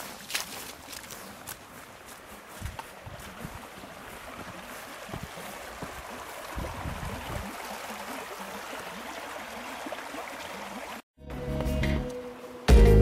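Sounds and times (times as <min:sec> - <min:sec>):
wind gusts on microphone: 0:05.0 - 0:07.7.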